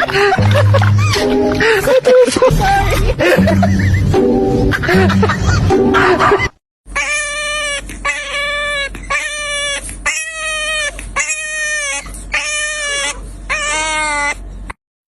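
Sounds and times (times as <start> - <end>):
low hum: 0.0 - 6.5
dog whining: 6.9 - 14.7.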